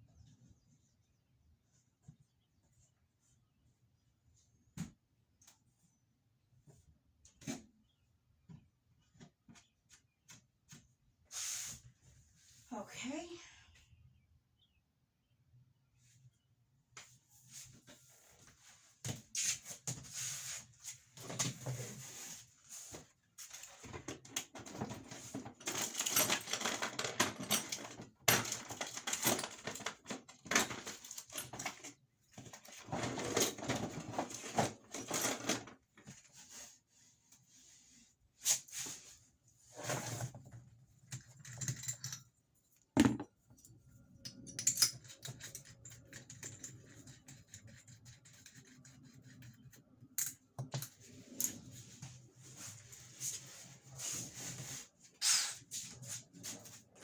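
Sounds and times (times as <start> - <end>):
plumbing parts and tools clattering: 23.4 - 36.2, 39.8 - 42.4, 43.0 - 47.1.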